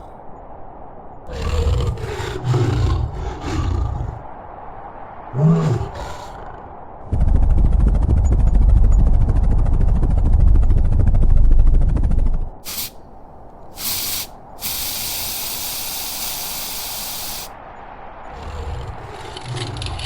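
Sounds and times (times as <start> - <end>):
deep loud rumble: 0.6 - 20.0
spray can hissing: 12.6 - 13.0, 13.7 - 17.5.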